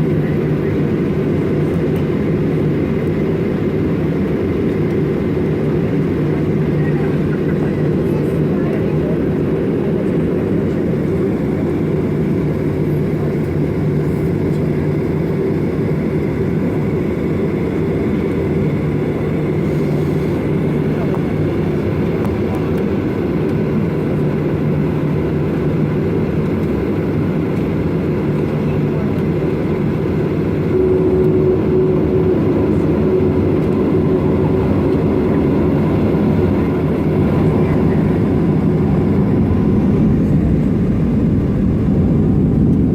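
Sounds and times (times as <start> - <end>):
jet engine rumble in cabin: 0.0 - 42.9
steady hum: 28.7 - 42.9.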